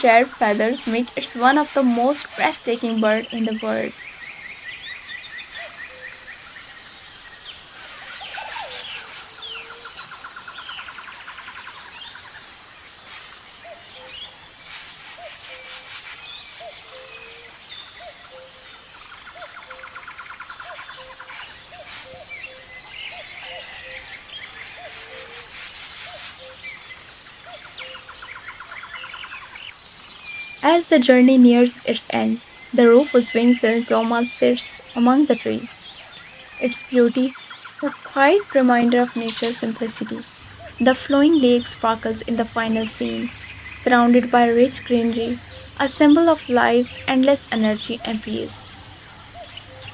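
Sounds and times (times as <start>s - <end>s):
birds chirping and calling: 0.0s - 49.9s
high insect drone: 0.0s - 49.9s
rapid bird trills: 0.0s - 49.9s.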